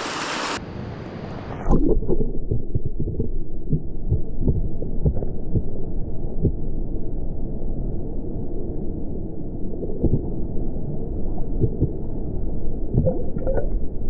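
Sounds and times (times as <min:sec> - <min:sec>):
muffled underwater water rumble: 0:00.4 - 0:14.0
underwater knocks and thumps: 0:01.8 - 0:05.7, 0:11.6 - 0:12.0, 0:13.0 - 0:13.7.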